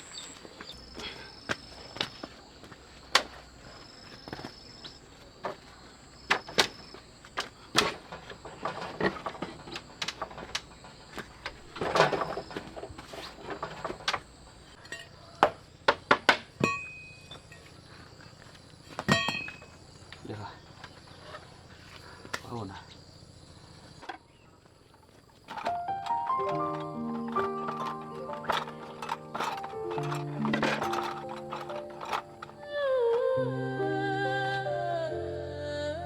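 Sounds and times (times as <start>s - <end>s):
knocks and clicks of handling: 0.1s - 17.4s, 25.3s - 33.2s.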